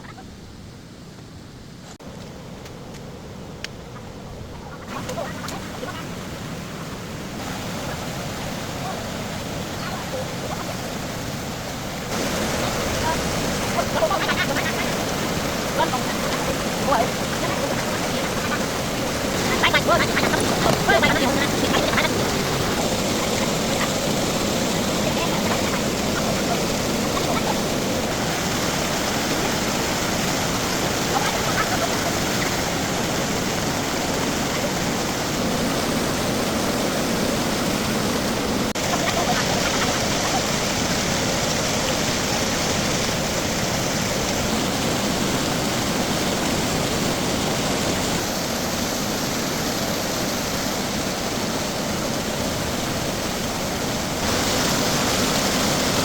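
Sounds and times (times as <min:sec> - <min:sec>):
steady rushing noise: 0:01.9 - 0:56.0.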